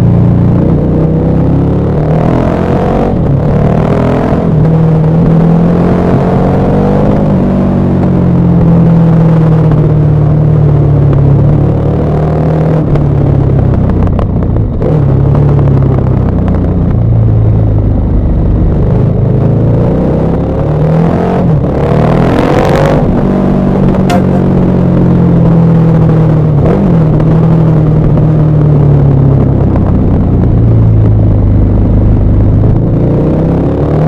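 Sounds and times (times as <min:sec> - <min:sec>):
motorcycle engine running: 0:23.0 - 0:33.1.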